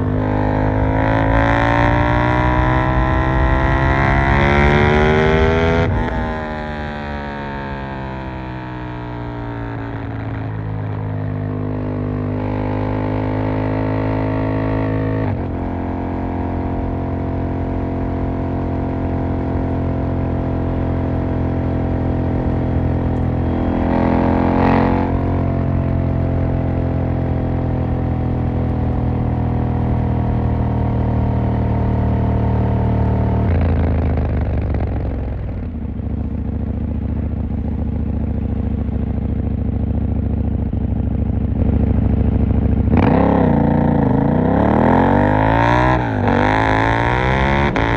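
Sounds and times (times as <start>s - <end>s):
loud rushing noise: 0.0s - 6.9s
motorcycle engine accelerating: 0.0s - 47.9s.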